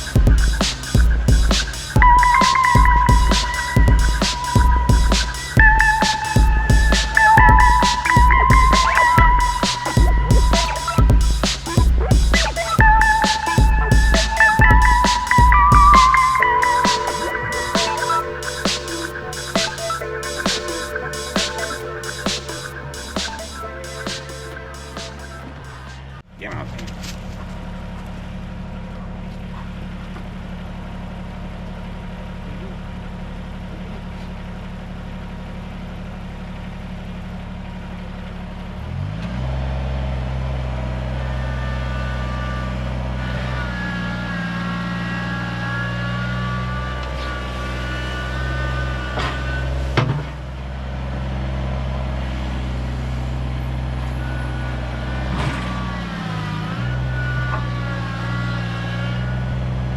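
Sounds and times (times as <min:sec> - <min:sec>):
tractor diesel engine running: 0:00.0 - 0:26.2
wavering high whine: 0:00.0 - 0:26.2.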